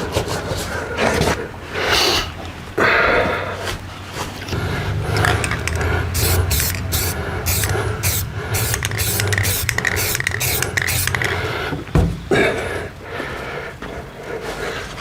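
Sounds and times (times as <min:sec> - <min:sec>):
steady low hum: 0:04.5 - 0:13.6
spray paint can hissing: 0:04.6 - 0:11.6.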